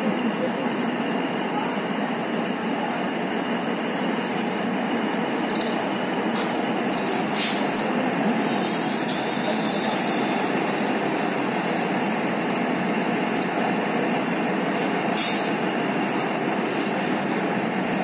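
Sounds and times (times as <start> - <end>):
diesel train running: 0.0 - 18.0
high-pitched brake squeal: 8.3 - 10.9.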